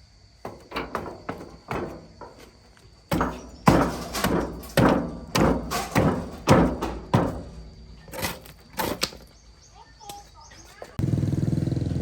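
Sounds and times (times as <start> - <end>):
heavy ringing knocks: 0.4 - 8.1.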